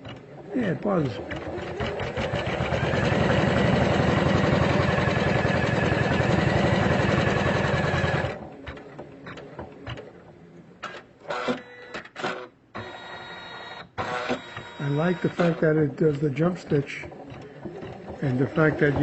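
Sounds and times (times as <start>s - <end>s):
embroidery machine stitching: 0.0s - 13.3s, 14.0s - 19.0s
short mechanical clicks: 14.0s - 19.0s.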